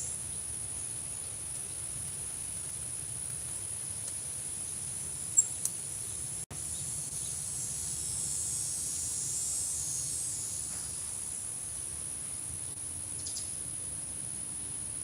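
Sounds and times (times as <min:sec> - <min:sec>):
insects singing: 0:04.7 - 0:14.8.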